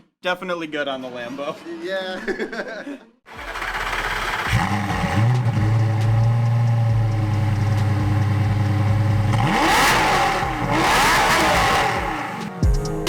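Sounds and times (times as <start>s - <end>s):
car engine revving: 3.3s - 12.6s.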